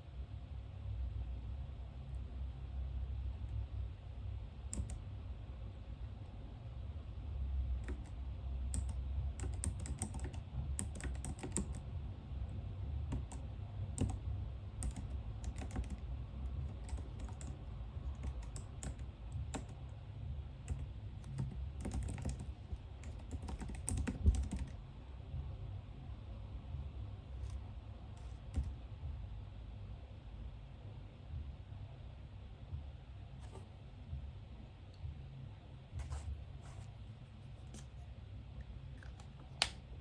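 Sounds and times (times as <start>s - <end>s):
keyboard key clicks: 4.7s - 5.0s.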